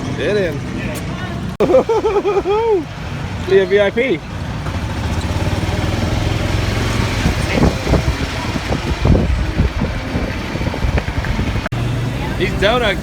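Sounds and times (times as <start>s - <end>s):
vehicle engine humming: 0.0s - 13.0s
low rumbles: 4.2s - 13.0s.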